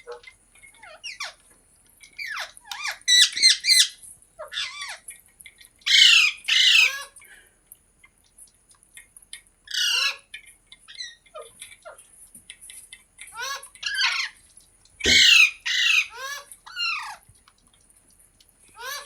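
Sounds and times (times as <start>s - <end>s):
parrot chirping softly: 0.0s - 19.0s
parrot squawking: 2.2s - 5.0s, 5.9s - 7.2s, 9.7s - 10.2s, 13.4s - 14.4s, 15.0s - 17.2s, 18.8s - 19.0s.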